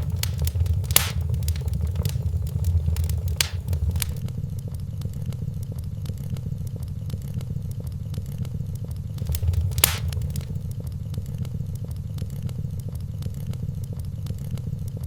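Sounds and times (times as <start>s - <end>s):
steady low rumble: 0.0s - 4.2s, 9.2s - 10.6s
wood fire crackling: 0.0s - 4.2s, 9.2s - 10.6s.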